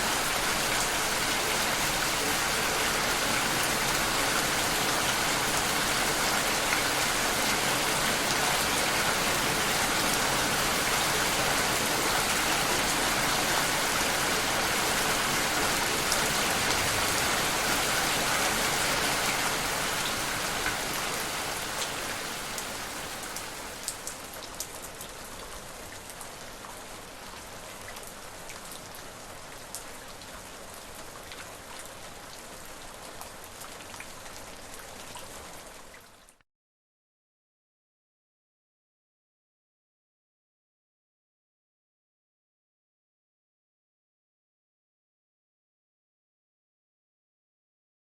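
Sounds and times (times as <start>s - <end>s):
heavy rain: 0.0s - 35.9s.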